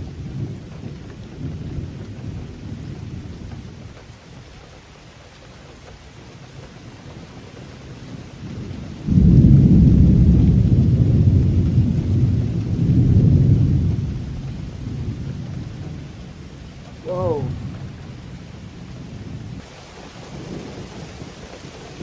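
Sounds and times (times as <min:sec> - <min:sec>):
steady rain: 0:00.0 - 0:22.0
thunder rumbling: 0:08.5 - 0:19.7.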